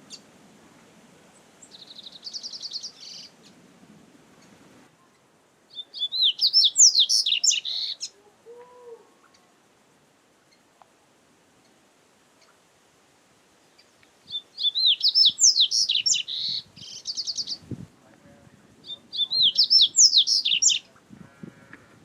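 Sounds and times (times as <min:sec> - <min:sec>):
bird singing: 0:01.3 - 0:03.6, 0:04.4 - 0:09.5, 0:13.7 - 0:17.7, 0:18.8 - 0:21.0
high bird trill: 0:01.6 - 0:03.6, 0:04.4 - 0:09.5, 0:13.7 - 0:17.7, 0:18.8 - 0:21.0.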